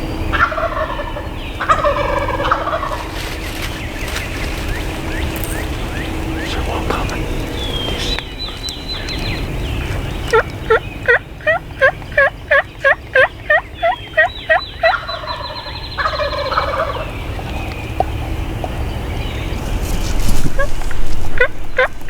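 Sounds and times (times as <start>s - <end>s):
turkey yelps: 0.3s - 3.2s, 9.8s - 17.1s
turkey gobble: 0.3s - 17.7s, 20.5s - 22.0s.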